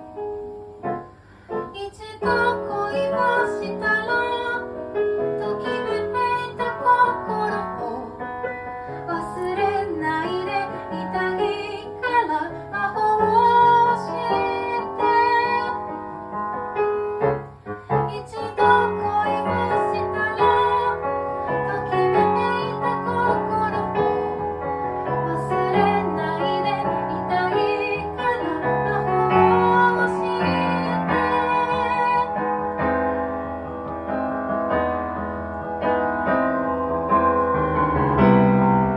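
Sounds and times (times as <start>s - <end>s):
piano accompaniment: 0.0s - 38.9s
woman singing: 1.6s - 16.0s, 17.9s - 32.6s.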